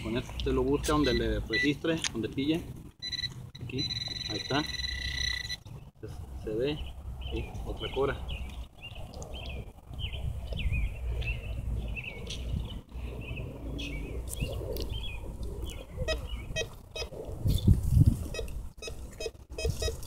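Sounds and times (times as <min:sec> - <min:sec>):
small birds chirping: 0:00.1 - 0:01.8, 0:03.0 - 0:17.8
wind rumbling on microphone: 0:05.3 - 0:20.0.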